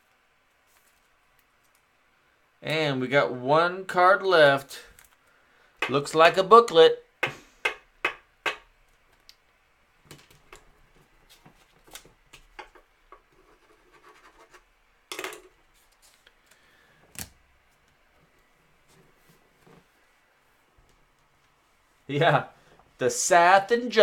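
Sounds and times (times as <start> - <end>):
cards scraping and rubbing: 13.3 - 14.7.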